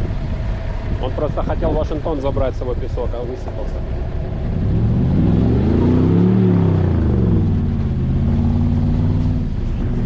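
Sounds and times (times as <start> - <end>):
suv engine revving under load: 3.8 - 10.0.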